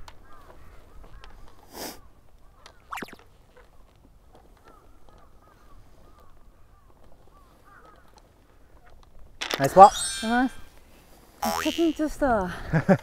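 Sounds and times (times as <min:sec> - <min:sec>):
birds calling: 0:09.4 - 0:10.7.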